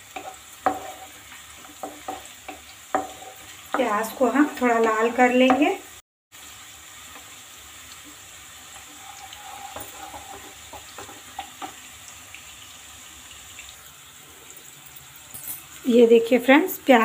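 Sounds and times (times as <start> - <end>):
wooden spatula scraping the pan: 0.0 - 5.6, 8.7 - 11.9
onions sizzling in hot oil: 0.0 - 17.0.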